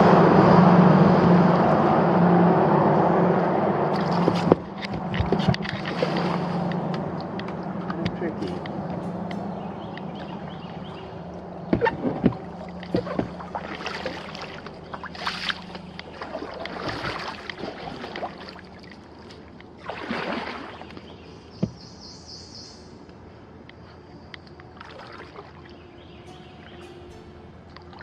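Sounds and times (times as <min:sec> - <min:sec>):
paddle splashing in water: 0:03.9 - 0:09.0, 0:09.8 - 0:21.9, 0:24.7 - 0:26.8
paddle knocking against hull: 0:04.0 - 0:08.8, 0:11.7 - 0:18.4, 0:21.6 - 0:22.0.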